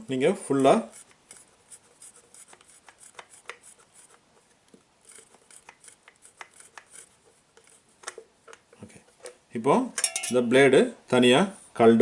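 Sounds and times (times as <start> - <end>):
small metallic clicks and rubbing: 0.6 - 9.4.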